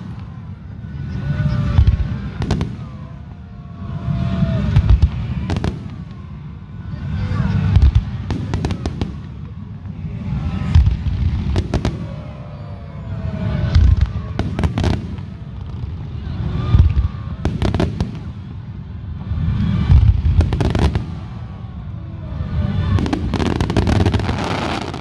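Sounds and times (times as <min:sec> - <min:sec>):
fireworks crackling: 0:00.0 - 0:00.6, 0:01.6 - 0:03.3, 0:04.6 - 0:12.7, 0:13.4 - 0:16.0, 0:17.4 - 0:21.8, 0:22.8 - 0:25.0
fireworks booming: 0:01.8 - 0:03.2, 0:04.7 - 0:06.4, 0:07.6 - 0:09.6, 0:10.6 - 0:12.6, 0:13.6 - 0:15.9, 0:16.8 - 0:18.7, 0:19.5 - 0:21.6, 0:22.9 - 0:25.0.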